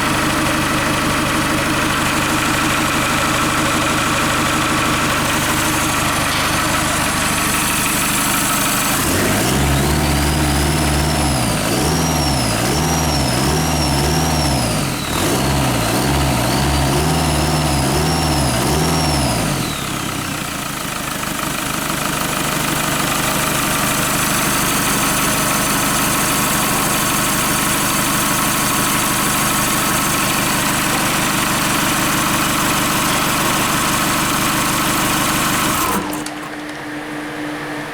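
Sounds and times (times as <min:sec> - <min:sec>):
starter motor cranking engine: 0:00.0 - 0:36.9.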